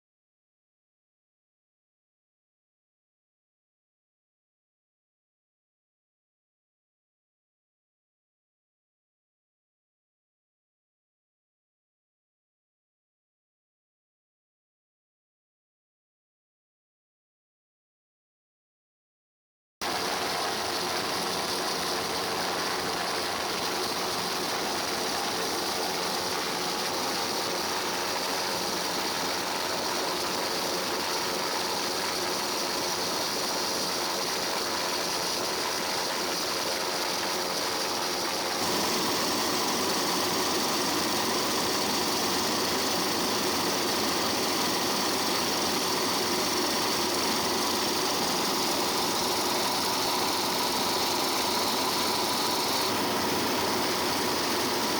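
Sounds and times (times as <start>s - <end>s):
aircraft engine drone: 19.8s - 54.9s
faint high whine: 19.8s - 54.9s.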